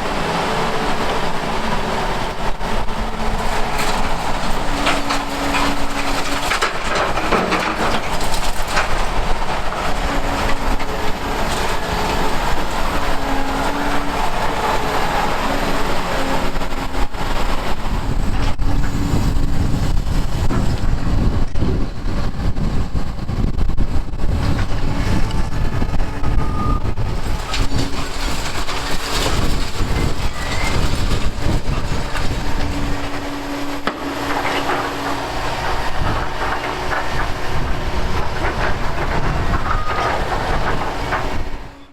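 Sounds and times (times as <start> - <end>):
excavator engines droning: 0.0 - 41.9
broken concrete clattering and scraping: 0.2 - 19.0, 27.1 - 41.9.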